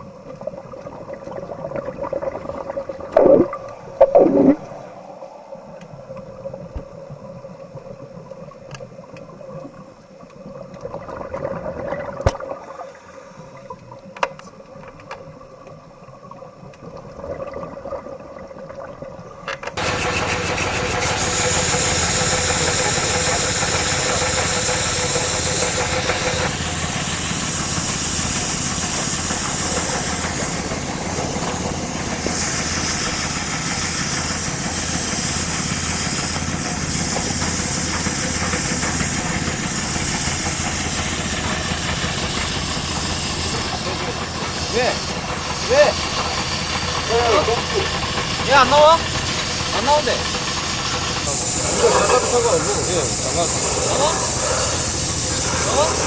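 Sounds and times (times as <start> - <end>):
faint steady hum: 0.0 - 19.8
motor-driven machine running: 19.7 - 56.0.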